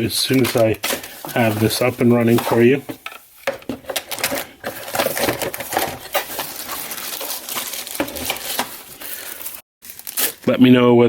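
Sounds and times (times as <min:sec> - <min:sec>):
clicks taps and light rustles: 0:00.2 - 0:08.8.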